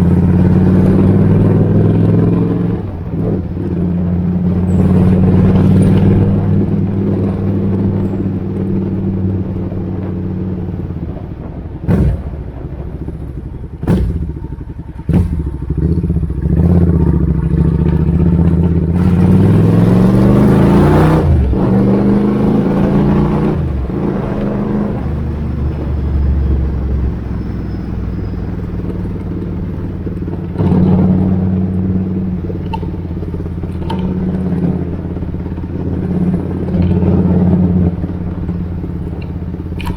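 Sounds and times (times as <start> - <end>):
motorcycle engine idling and revving: 0.0 - 39.9
sharp engine cracks: 11.1 - 26.0, 28.8 - 39.9.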